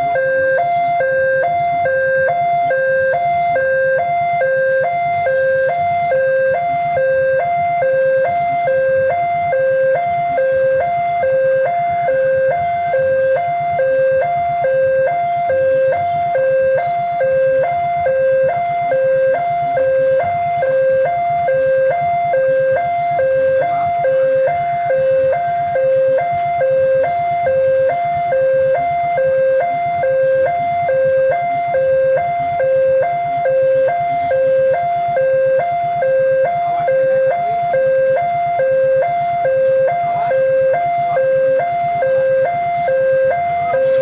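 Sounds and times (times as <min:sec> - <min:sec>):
two-tone crossing alarm: 0:00.0 - 0:44.0.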